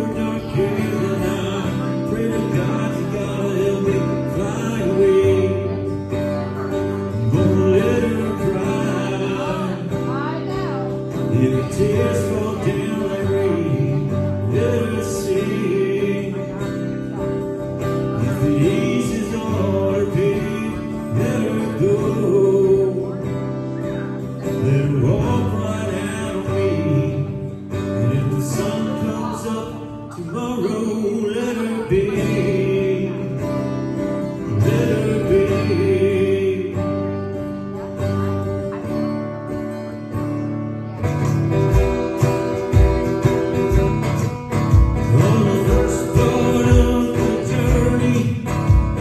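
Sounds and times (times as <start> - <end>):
recorded song with guitar: 0.0 - 49.0.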